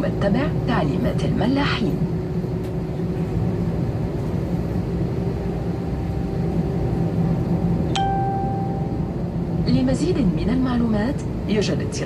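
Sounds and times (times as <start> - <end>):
airliner cabin machinery drone: 0.0 - 12.0.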